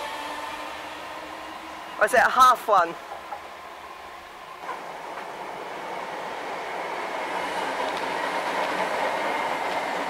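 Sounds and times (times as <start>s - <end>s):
electric train running on track: 0.0s - 10.0s.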